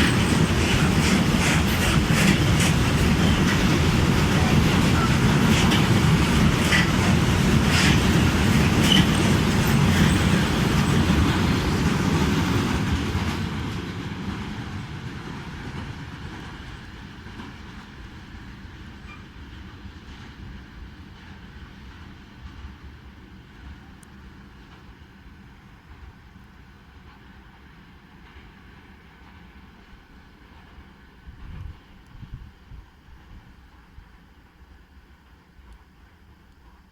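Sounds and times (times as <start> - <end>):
train wheel clicks: 0.0 - 13.8
train rumbling past: 0.0 - 36.9.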